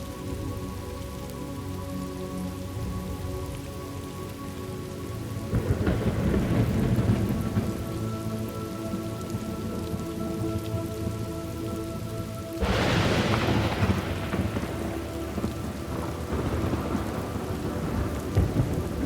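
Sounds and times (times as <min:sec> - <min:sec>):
steady rain: 0:00.0 - 0:19.0
thunderclap rumbling: 0:05.4 - 0:19.0.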